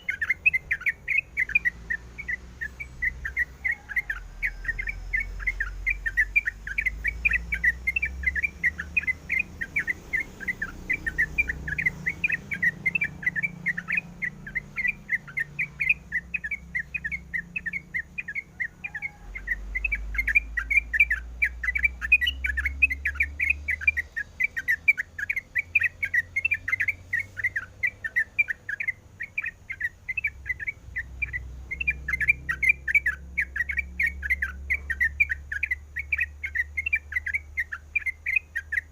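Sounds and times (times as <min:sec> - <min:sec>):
bird chattering high chirps: 0:00.0 - 0:38.9.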